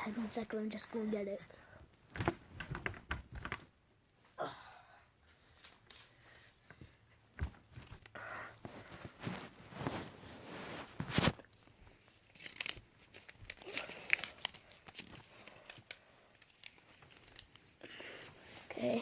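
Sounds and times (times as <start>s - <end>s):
paper rustling: 5.4s - 8.1s, 8.7s - 19.0s.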